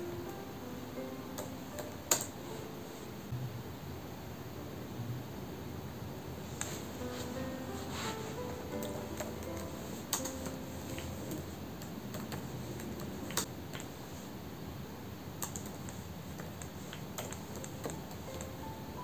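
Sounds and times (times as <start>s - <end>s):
background hiss: 0.0s - 19.0s
computer keyboard key clicks: 8.8s - 13.9s, 15.4s - 18.6s.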